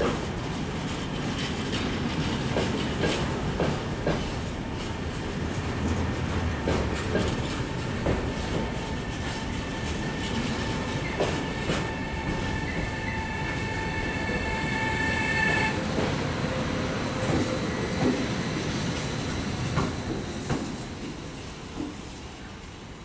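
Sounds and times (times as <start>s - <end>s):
train wheels rumbling on rails: 0.0s - 23.0s
high wheel squeal: 11.0s - 15.8s.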